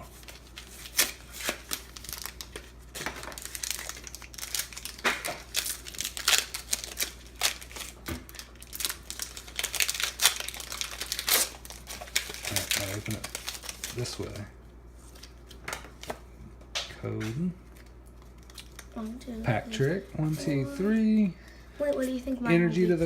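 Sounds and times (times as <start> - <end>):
foil packs tearing and crinkling: 0.0 - 14.5.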